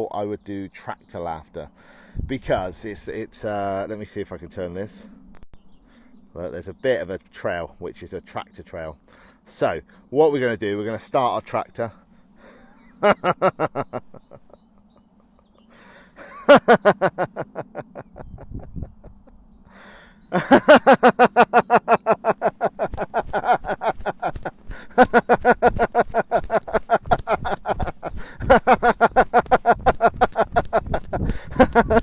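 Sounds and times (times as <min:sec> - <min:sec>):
man laughing in staccato bursts: 0:12.4 - 0:32.0.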